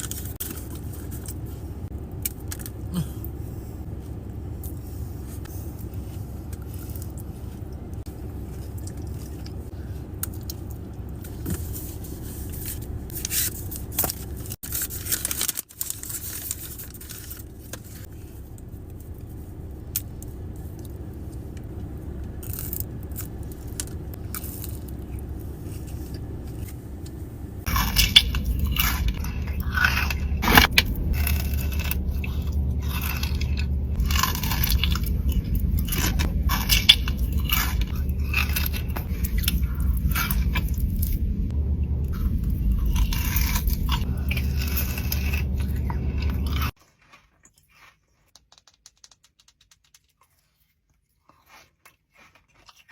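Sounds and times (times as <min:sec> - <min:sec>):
person chewing chocolate: 0:04.6 - 0:11.2, 0:18.6 - 0:26.6, 0:27.6 - 0:52.9
steady low hum: 0:17.1 - 0:46.8
sharp crackles: 0:27.7 - 0:46.8.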